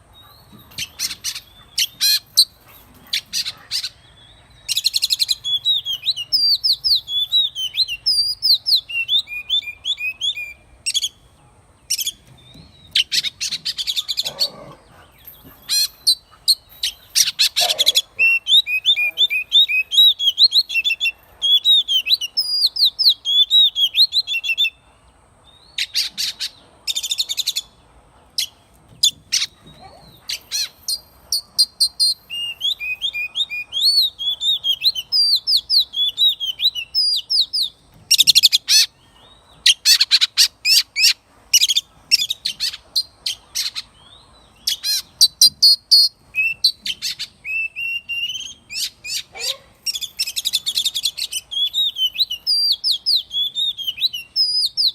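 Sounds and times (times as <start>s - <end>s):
bird singing whistled phrases: 4.5s - 11.2s, 17.2s - 24.8s, 31.9s - 38.9s, 44.7s - 54.9s.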